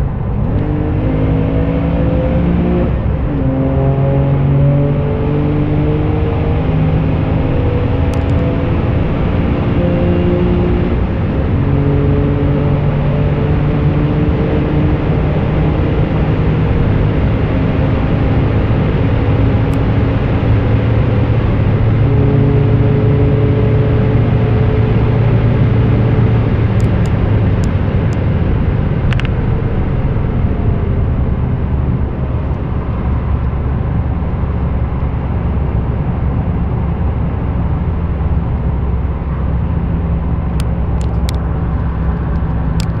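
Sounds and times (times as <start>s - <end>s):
car engine at high speed: 0.0s - 43.0s
road and wind noise: 0.0s - 43.0s.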